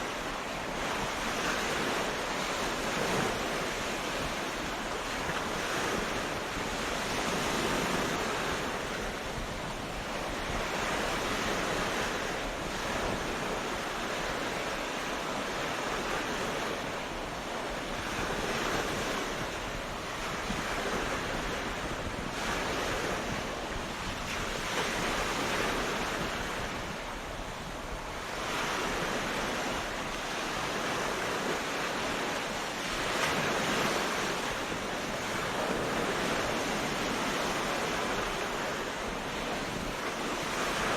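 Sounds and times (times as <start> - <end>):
ocean waves breaking on beach: 0.0 - 40.9.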